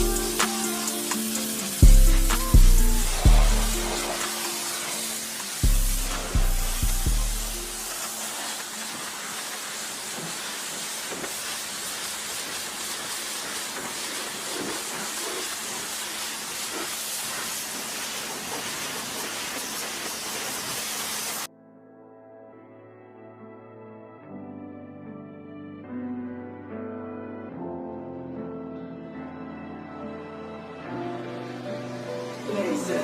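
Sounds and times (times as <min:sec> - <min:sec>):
high-pressure water spray hissing: 0:00.0 - 0:21.5.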